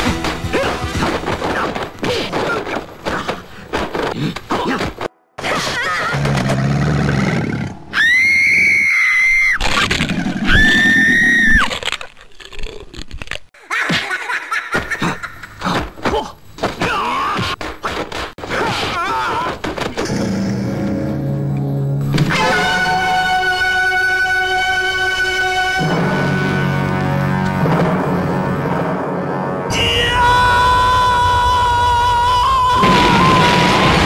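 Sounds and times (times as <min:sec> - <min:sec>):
high-pitched screams: 0:07.9 - 0:09.7, 0:10.5 - 0:11.7, 0:29.7 - 0:34.0.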